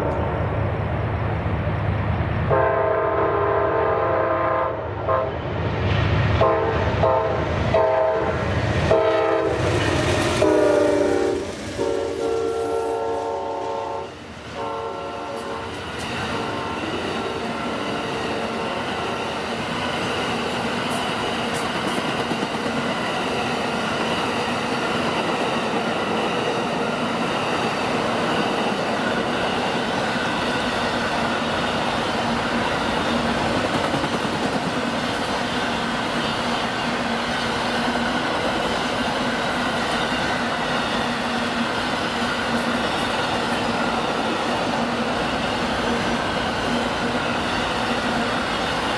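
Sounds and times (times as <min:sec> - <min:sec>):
train wheels and cars passing: 0:00.0 - 0:48.9
locomotive air horn blasts: 0:02.5 - 0:05.4, 0:06.4 - 0:09.6, 0:10.4 - 0:15.8.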